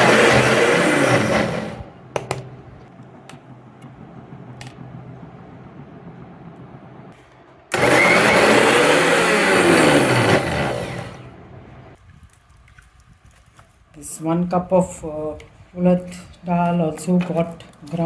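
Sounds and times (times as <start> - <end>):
mixer grinder motor: 0.0 - 2.0, 7.7 - 12.0.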